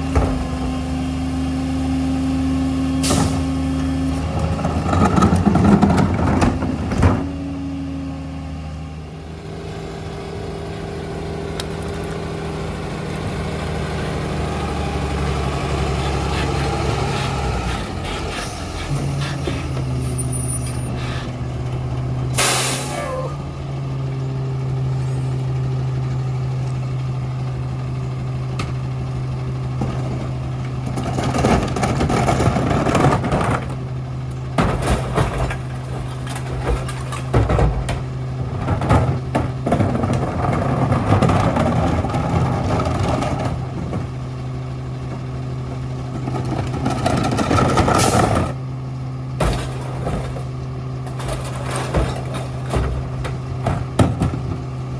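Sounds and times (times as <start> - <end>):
garbage truck diesel engine running: 0.0 - 54.9
loud uneven clattering: 34.5 - 44.2, 49.4 - 54.8.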